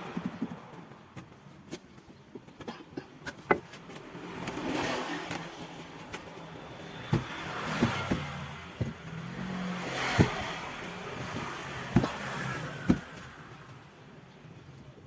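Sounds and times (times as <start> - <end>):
vehicle passing on road: 3.7 - 14.0.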